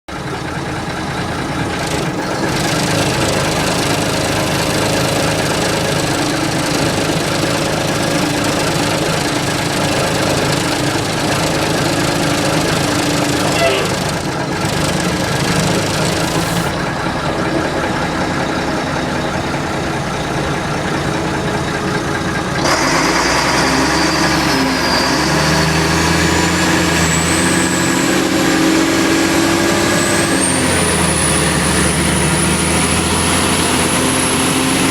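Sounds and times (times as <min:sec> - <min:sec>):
diesel truck engine running: 0:00.1 - 0:34.9
rushing noise: 0:13.2 - 0:17.4.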